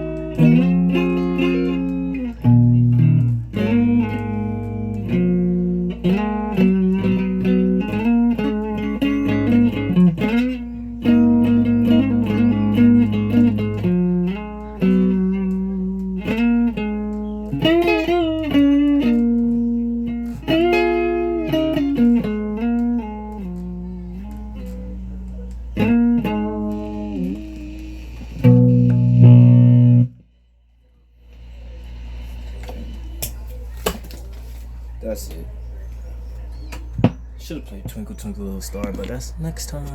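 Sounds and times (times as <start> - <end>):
guitar played with a pick: 0.0 - 30.3.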